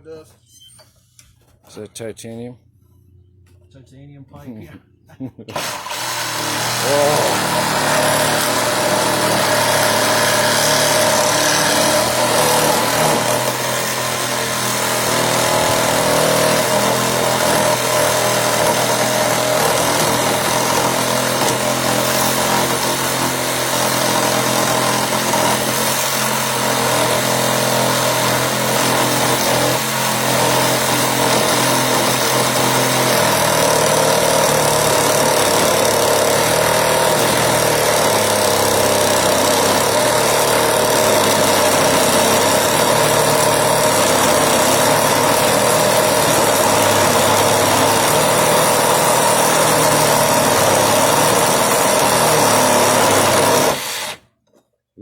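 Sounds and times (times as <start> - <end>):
reciprocating saw cutting metal pipe: 5.5 - 54.3.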